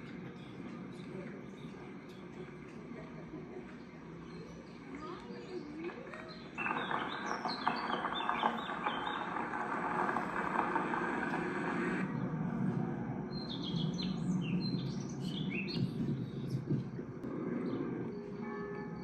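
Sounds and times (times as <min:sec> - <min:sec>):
small birds chirping: 0:03.6 - 0:11.4, 0:13.3 - 0:18.4.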